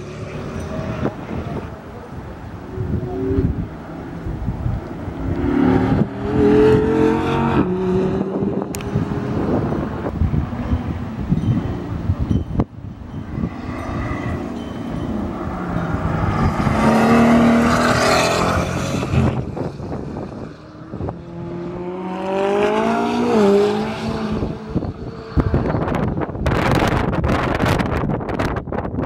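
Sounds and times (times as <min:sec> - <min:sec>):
wind gusts on microphone: 0:00.0 - 0:29.0
sports car engine revving past: 0:02.7 - 0:11.0, 0:13.3 - 0:26.1.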